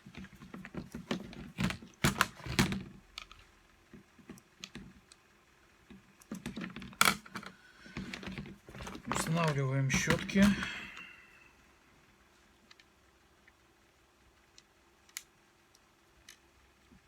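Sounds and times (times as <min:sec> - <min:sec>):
small parts clicking and tapping: 0:00.1 - 0:11.1, 0:12.6 - 0:13.6, 0:14.4 - 0:17.0.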